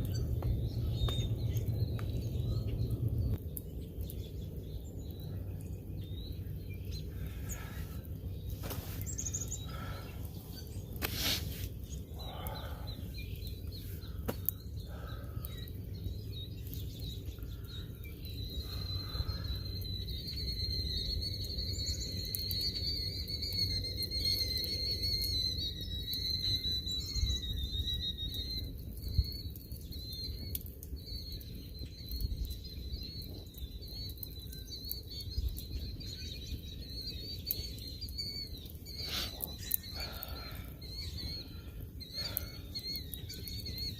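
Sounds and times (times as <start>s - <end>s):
low rumble: 0.0s - 3.9s
bird calls: 0.0s - 43.9s.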